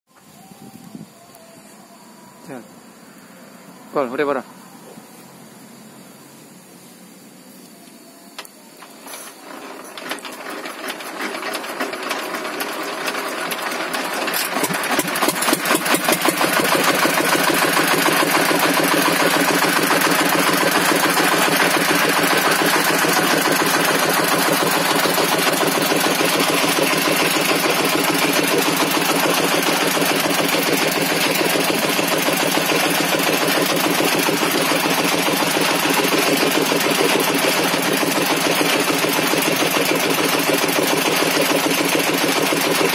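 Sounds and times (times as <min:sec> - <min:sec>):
table saw running: 0:08.8 - 0:42.9.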